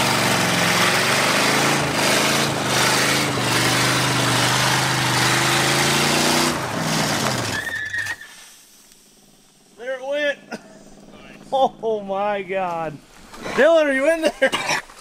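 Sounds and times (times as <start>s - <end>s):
car engine at high revs: 0.0s - 7.6s
tires spinning: 0.0s - 14.2s.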